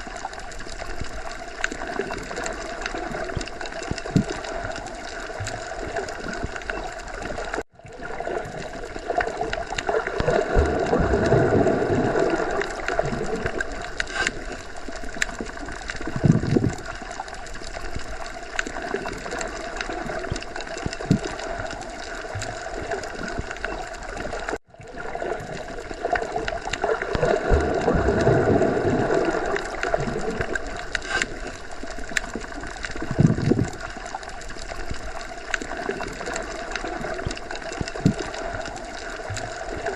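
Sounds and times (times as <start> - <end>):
low underwater gurgles: 0.0 - 39.9
underwater water noise: 0.0 - 39.9.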